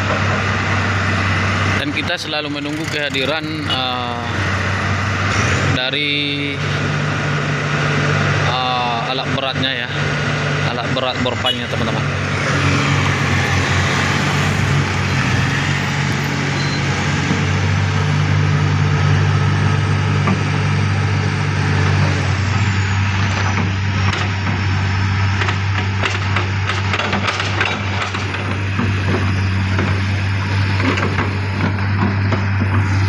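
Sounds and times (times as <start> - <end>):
diesel engine running: 0.0 - 33.0
clanks and rattles: 25.4 - 32.9.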